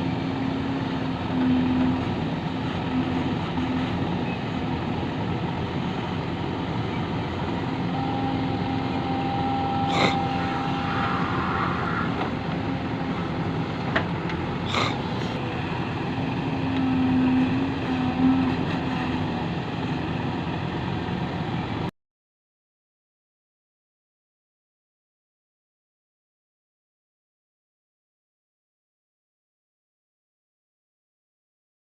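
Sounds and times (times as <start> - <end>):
diesel machinery running: 0.0 - 21.9.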